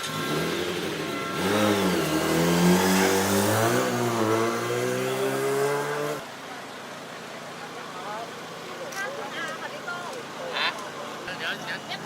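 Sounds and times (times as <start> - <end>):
racing motorcycle engine revving: 0.0 - 6.3.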